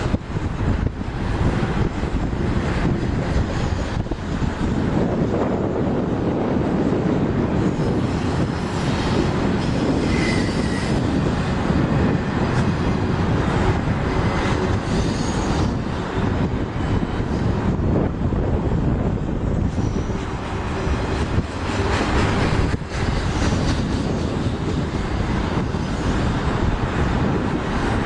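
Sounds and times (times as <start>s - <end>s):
train wheels rumbling on rail: 0.0s - 28.0s
high wheel squeal: 7.7s - 11.8s, 14.2s - 16.0s, 19.6s - 26.5s.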